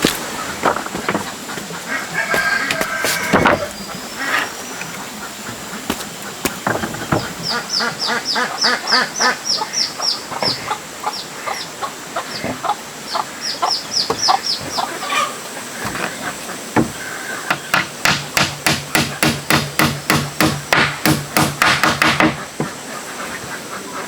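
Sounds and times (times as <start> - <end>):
chicks peeping: 0.0 - 17.5
chickens clucking: 0.0 - 17.7, 22.2 - 24.0
sharp knocks: 2.3 - 3.7, 5.9 - 7.4, 16.8 - 22.7.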